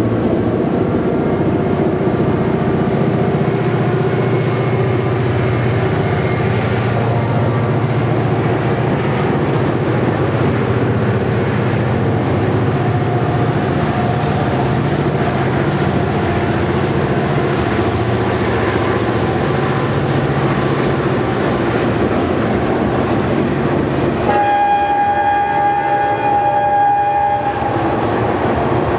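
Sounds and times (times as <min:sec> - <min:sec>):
diesel locomotive engine drone: 0:00.0 - 0:28.9
locomotive air horn: 0:24.2 - 0:28.2.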